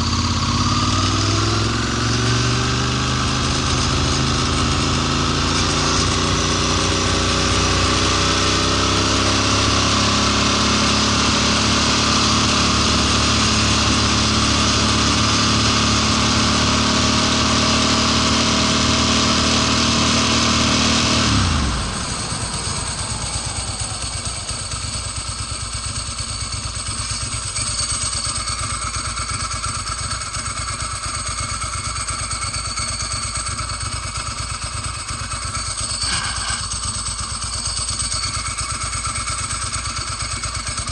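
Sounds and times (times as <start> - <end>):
motorcycle engine revving high: 0.0 - 40.9
faint high whines: 35.6 - 39.0.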